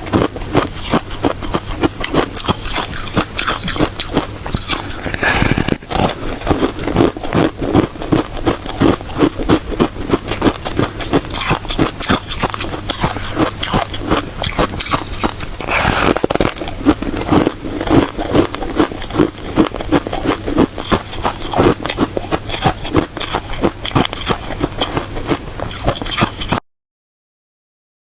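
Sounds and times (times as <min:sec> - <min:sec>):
crunching and chewing ice: 0:00.0 - 0:26.6
scraping noise: 0:04.5 - 0:06.9, 0:14.9 - 0:16.7.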